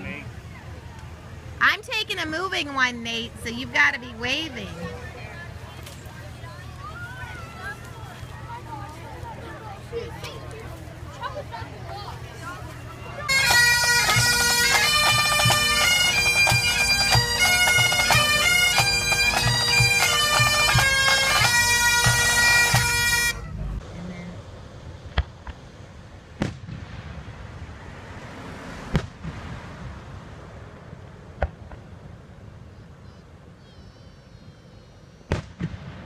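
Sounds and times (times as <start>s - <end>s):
outdoor background noise: 0.0s - 36.0s
bagpipe band playing: 12.9s - 23.5s.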